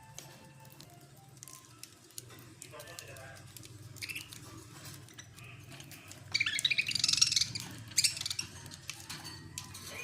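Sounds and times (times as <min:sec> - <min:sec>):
budgerigars chirping: 0:04.0 - 0:04.4, 0:05.2 - 0:09.0.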